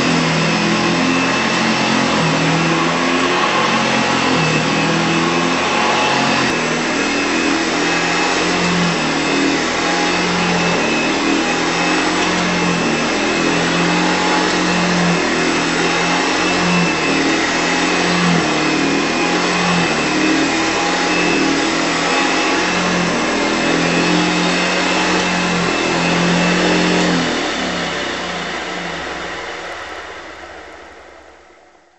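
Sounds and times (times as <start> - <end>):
upright vacuum cleaner running: 0.0 - 31.0.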